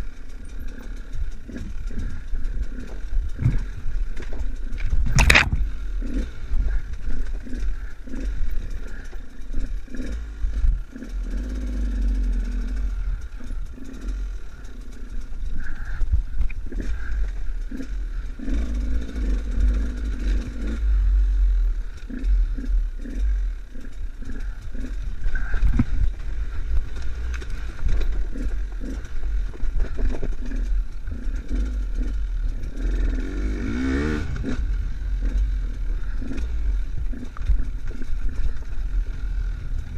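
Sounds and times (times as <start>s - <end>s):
knocks and rattles: 0.0s - 10.8s
motorcycle engine revving: 0.0s - 39.9s.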